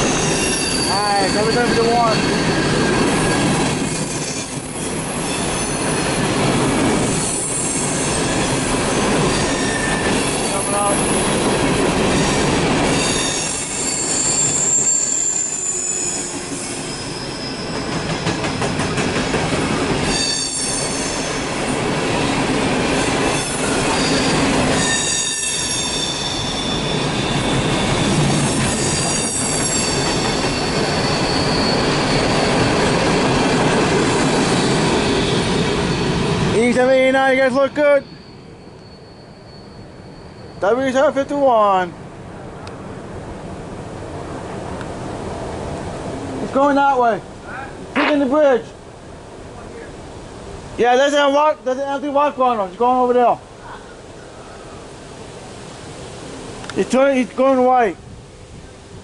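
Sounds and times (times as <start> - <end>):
high-pitched wheel squeal: 0.0 - 6.1, 7.2 - 8.7, 9.3 - 11.4, 12.2 - 18.8, 20.0 - 21.5, 23.3 - 33.7, 34.4 - 36.2, 37.8 - 41.1
train wheels rumbling and clattering: 0.0 - 38.5.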